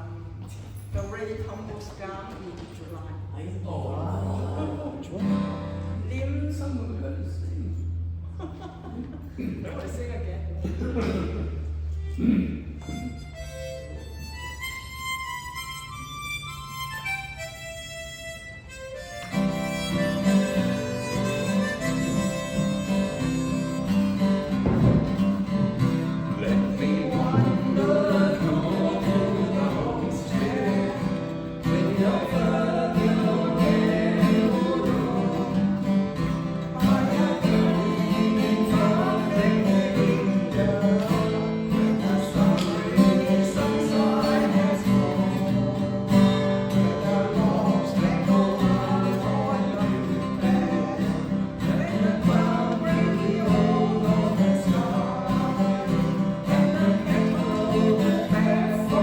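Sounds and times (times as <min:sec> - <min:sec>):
strummed acoustic guitar: 0:04.1 - 0:06.8, 0:10.6 - 0:59.0
person singing a country song: 0:19.3 - 0:59.0.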